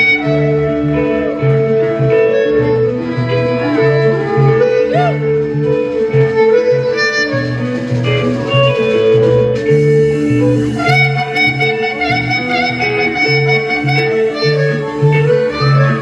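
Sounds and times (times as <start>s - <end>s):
guitar: 0.0s - 16.0s
harmonica long wavering note: 0.0s - 16.0s
walking bass line: 0.0s - 16.0s.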